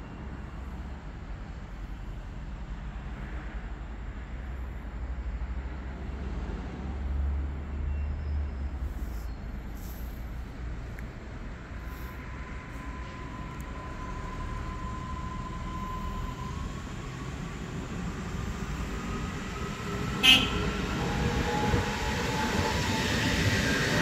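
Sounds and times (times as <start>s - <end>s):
train rumble: 8.6s - 24.0s.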